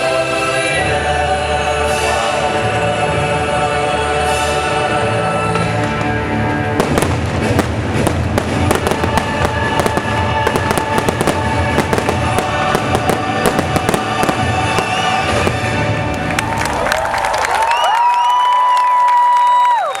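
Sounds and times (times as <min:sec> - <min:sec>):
music with sustained chords: 0:00.0 - 0:17.5
fireworks crackling and popping: 0:05.8 - 0:18.5.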